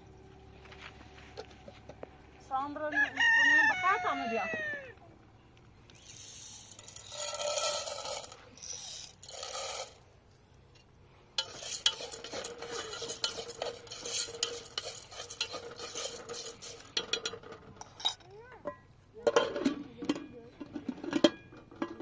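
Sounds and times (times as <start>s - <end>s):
utensil scraping and clinking pot: 6.0s - 10.0s, 10.8s - 22.0s
utensil swishing strokes: 11.4s - 17.0s.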